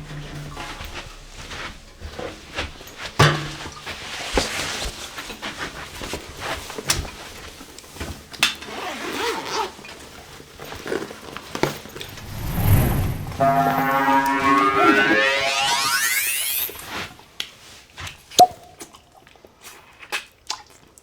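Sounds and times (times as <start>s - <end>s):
low rumble: 12.0s - 15.4s.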